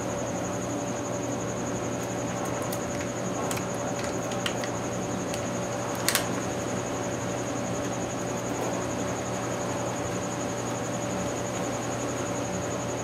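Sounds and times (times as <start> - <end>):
steady background hum: 0.0 - 13.0
light clicks: 2.7 - 6.3.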